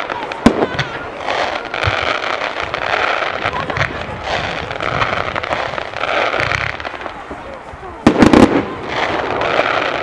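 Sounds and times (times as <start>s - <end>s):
fireworks crackling and popping: 0.0s - 10.0s.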